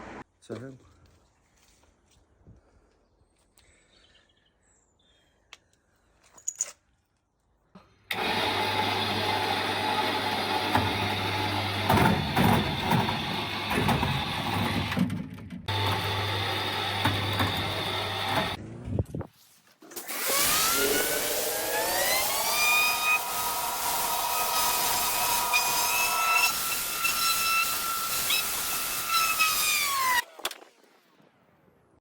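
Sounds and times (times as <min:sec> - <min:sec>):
motor-driven machine humming: 0:08.1 - 0:15.0, 0:15.7 - 0:18.6, 0:20.4 - 0:28.1.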